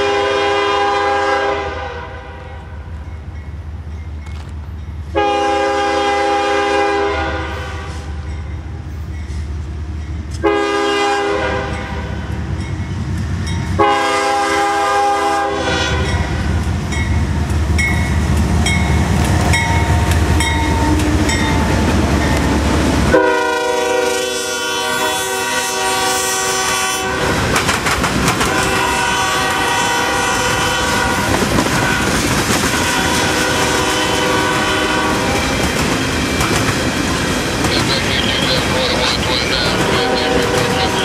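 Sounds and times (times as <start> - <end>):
locomotive horn blasts: 0.0 - 2.8, 5.1 - 8.1, 10.4 - 12.1, 13.8 - 16.3, 23.1 - 27.4, 28.4 - 35.5, 37.7 - 41.0
locomotive engine rumble: 27.3 - 41.0
wheels clicking over rail joints: 27.5 - 28.7.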